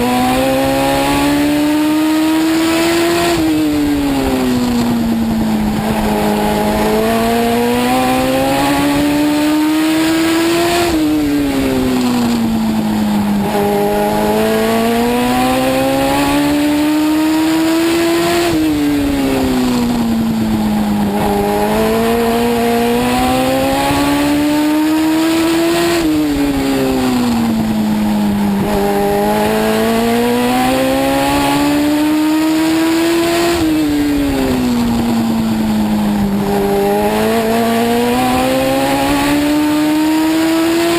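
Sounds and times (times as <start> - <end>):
race car engine revving: 0.0 - 40.9.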